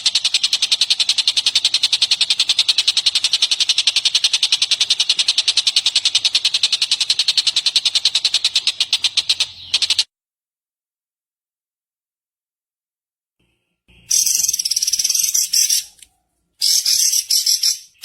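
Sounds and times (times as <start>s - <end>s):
songbird trilling: 0.1s - 10.0s, 14.1s - 18.0s.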